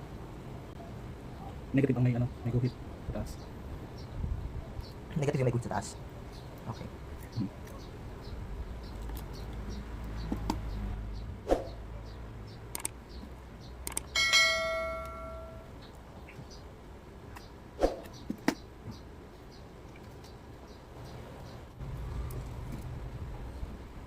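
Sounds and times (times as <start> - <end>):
metallic strike ringing: 14.2 - 15.7.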